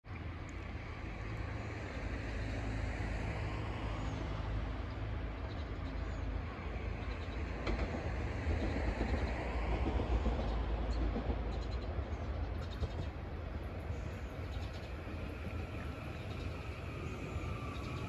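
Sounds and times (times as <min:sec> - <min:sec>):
distant train rumble and hiss: 0:00.1 - 0:18.0.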